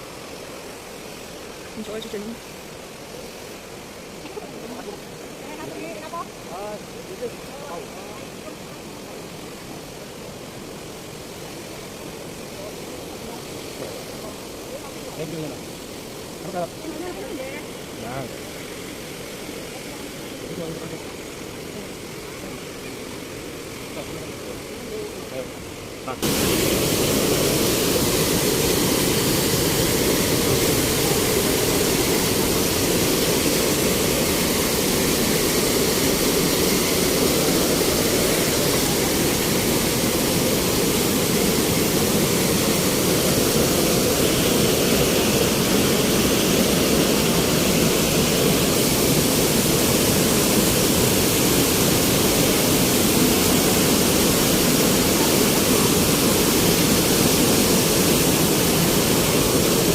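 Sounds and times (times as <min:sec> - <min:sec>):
waterfall pouring: 0:26.2 - 0:59.9.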